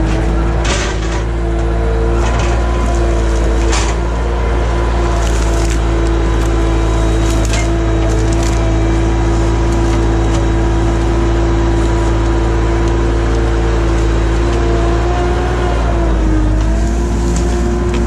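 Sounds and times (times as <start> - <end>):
loader engine whining: 0.0 - 18.0.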